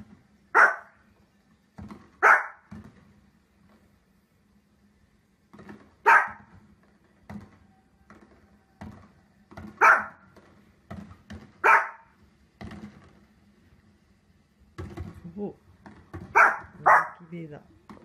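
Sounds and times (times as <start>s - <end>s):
fireworks on television: 0.0s - 18.0s
small dog barking: 0.5s - 1.0s, 2.2s - 2.7s, 6.0s - 6.5s, 9.8s - 10.2s, 11.6s - 12.2s, 16.3s - 17.3s.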